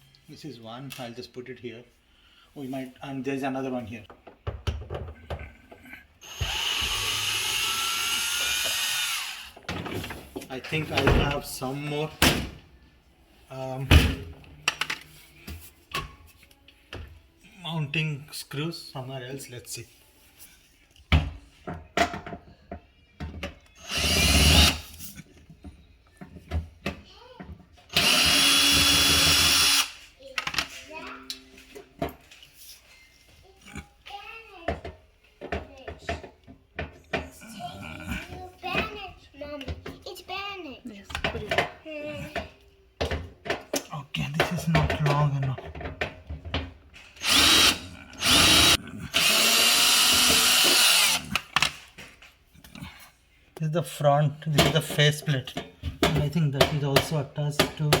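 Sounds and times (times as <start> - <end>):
power drill whining: 6.2 - 9.6, 23.8 - 24.9, 27.9 - 30.0, 47.2 - 51.5.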